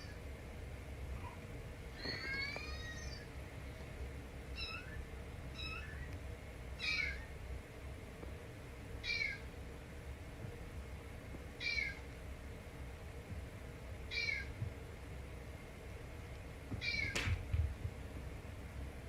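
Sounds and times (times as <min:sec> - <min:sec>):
kitten meowing: 0:02.0 - 0:03.3, 0:04.6 - 0:05.0, 0:05.6 - 0:06.1, 0:06.8 - 0:07.2, 0:09.0 - 0:09.4, 0:11.6 - 0:12.0, 0:14.1 - 0:14.5, 0:16.8 - 0:17.2.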